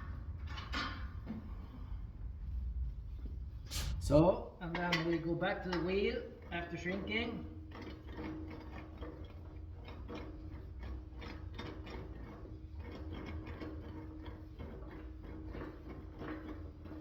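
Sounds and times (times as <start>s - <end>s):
rolling wheels rumbling on sheet metal: 4.1s - 17.0s.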